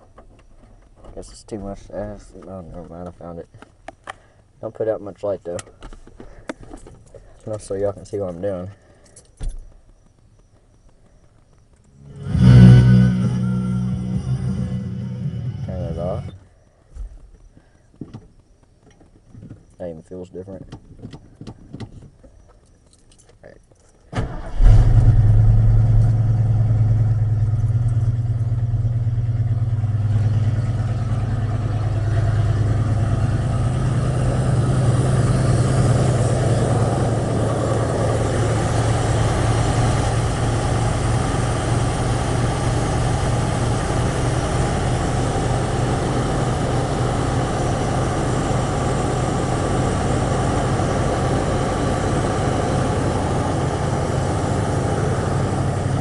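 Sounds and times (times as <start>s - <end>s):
car engine idling: 24.2s - 56.0s.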